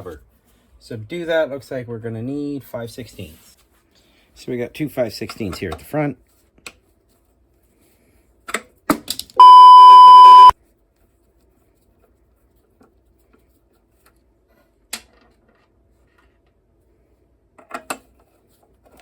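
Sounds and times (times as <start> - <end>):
censor bleep: 9.4 - 10.5.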